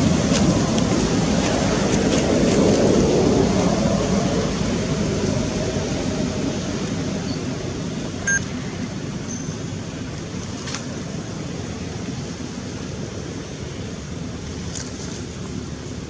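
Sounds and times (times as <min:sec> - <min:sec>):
steady rushing noise: 0:00.0 - 0:16.0
short high-pitched beep: 0:08.2 - 0:08.5.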